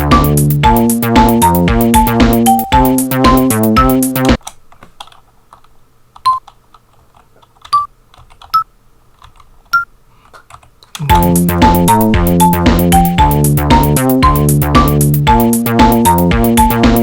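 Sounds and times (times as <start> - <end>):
sample loop music: 0.0 - 4.4, 11.1 - 17.0
computer keyboard typing: 7.4 - 8.6
short pitched notes: 11.1 - 16.8.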